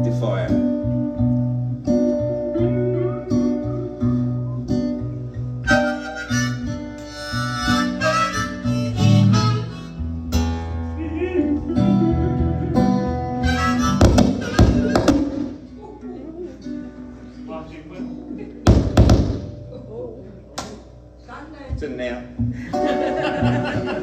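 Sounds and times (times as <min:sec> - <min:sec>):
acoustic guitar strumming: 0:00.0 - 0:15.8, 0:18.5 - 0:19.9, 0:22.3 - 0:24.0
harmonica melody: 0:02.5 - 0:15.7.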